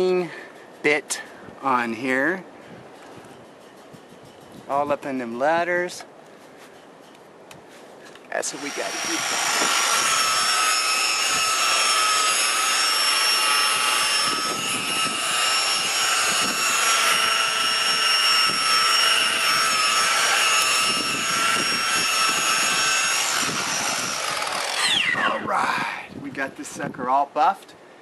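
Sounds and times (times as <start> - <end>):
electric buffer motor whine: 8.6 - 25.5.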